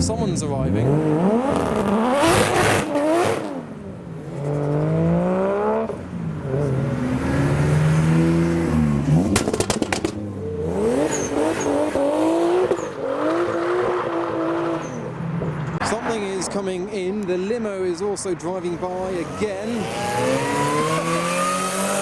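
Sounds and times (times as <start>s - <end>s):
car engines revving: 0.0s - 22.0s
sharp cracks: 9.2s - 10.2s.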